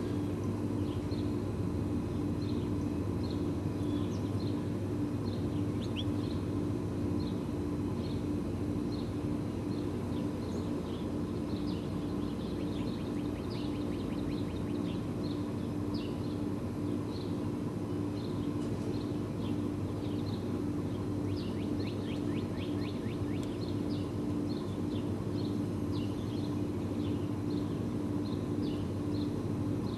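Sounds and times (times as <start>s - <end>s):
small birds chirping: 0.0s - 29.9s
steady low hum: 0.0s - 29.9s.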